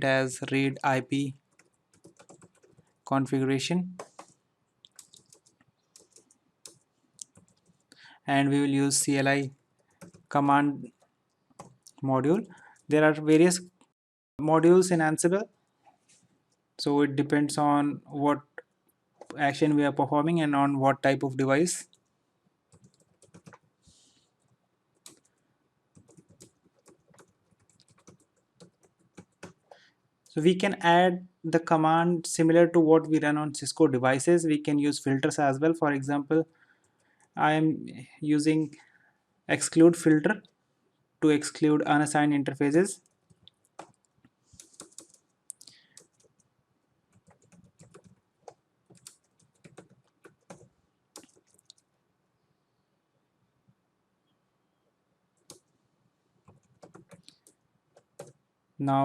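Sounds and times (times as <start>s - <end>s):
faint keyboard typing: 1.3s - 13.9s, 18.6s - 19.8s, 22.7s - 30.4s, 42.9s - 46.5s, 47.1s - 52.0s, 55.3s - 55.8s, 56.4s - 58.4s.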